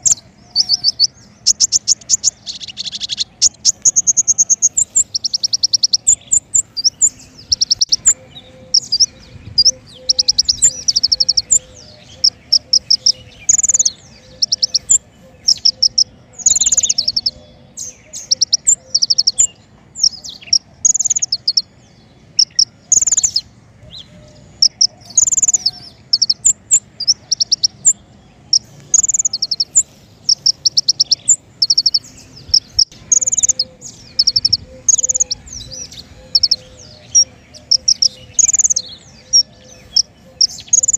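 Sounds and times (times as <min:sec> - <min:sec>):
songbird trills and chirps: 0:00.0 - 0:40.9.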